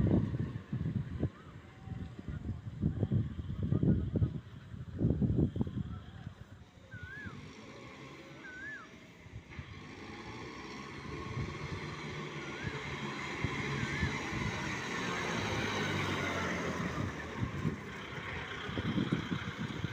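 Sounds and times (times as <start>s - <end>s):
short whistled chirps: 6.9s - 7.5s, 8.4s - 9.0s
tractor engine running: 6.9s - 19.9s.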